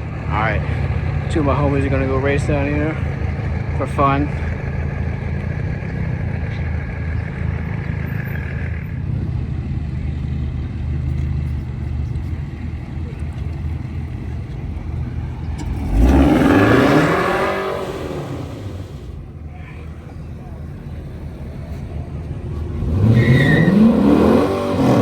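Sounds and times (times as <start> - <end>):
car engines idling: 0.0 - 25.0
car launching with engine revs: 14.6 - 25.0.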